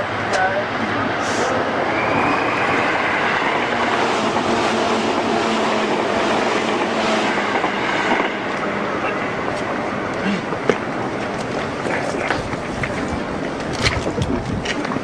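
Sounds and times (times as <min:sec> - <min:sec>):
rail cars rumbling: 0:00.0 - 0:15.0.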